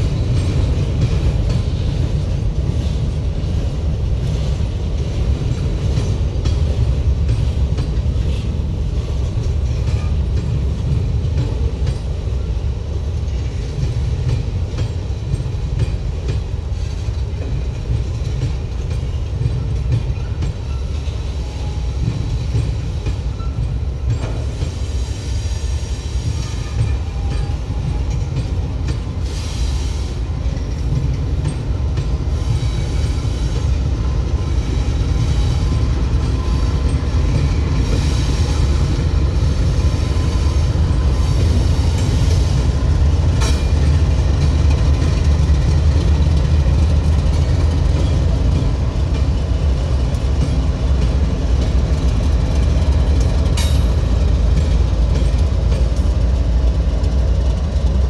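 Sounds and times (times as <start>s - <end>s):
train wheels rumbling on track: 0.0s - 58.0s.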